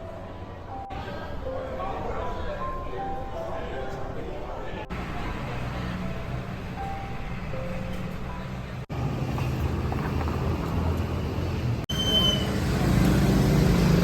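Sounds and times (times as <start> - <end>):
vehicle engines running: 4.9 - 14.0.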